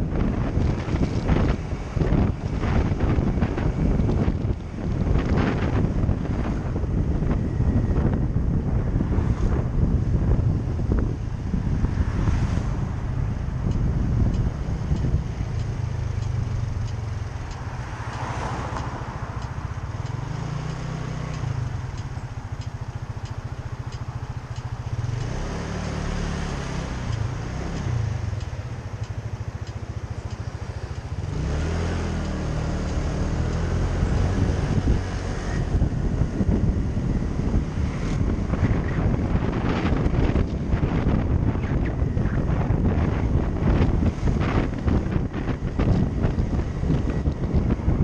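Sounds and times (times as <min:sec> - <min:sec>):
motorcycle engine revving: 0:23.9 - 0:29.4, 0:30.0 - 0:48.0.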